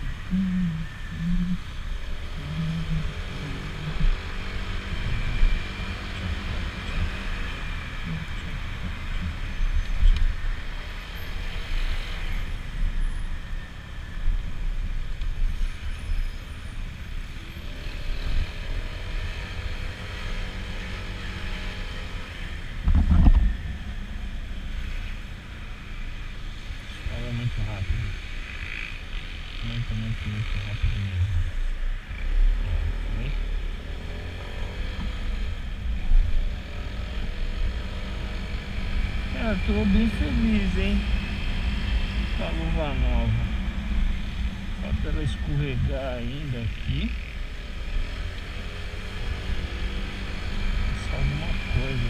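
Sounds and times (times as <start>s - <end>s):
traffic: 0.0s - 52.0s.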